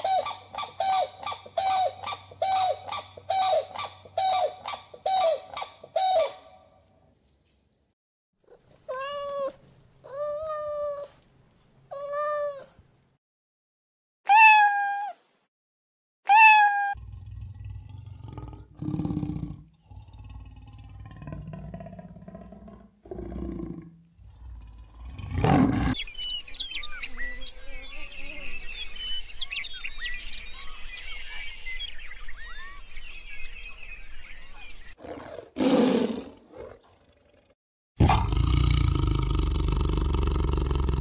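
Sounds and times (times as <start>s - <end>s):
big cat growling and roaring: 17.0s - 26.0s, 35.0s - 41.0s
deep tiger growl: 17.0s - 26.0s, 35.0s - 41.0s
birds chirping: 24.2s - 35.2s.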